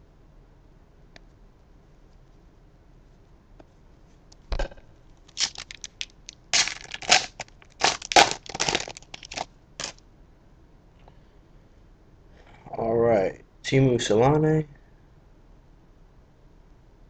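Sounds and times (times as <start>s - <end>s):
wrapper tearing and crinkling: 5.3s - 10.0s.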